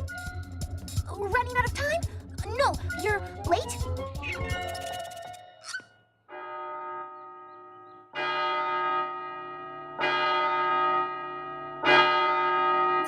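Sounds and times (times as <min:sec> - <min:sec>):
large bell tolling: 0:06.3 - 0:13.0.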